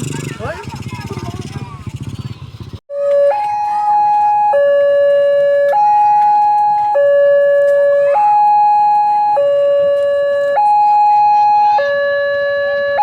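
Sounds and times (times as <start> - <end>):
two-tone crossing alarm: 2.9 - 13.0.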